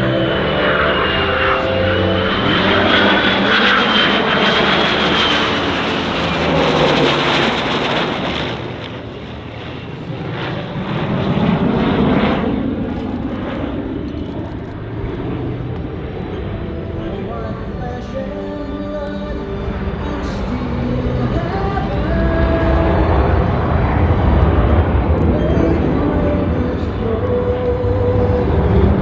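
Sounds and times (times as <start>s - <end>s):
jet engine noise: 0.0s - 29.0s
propeller engine: 0.0s - 29.0s.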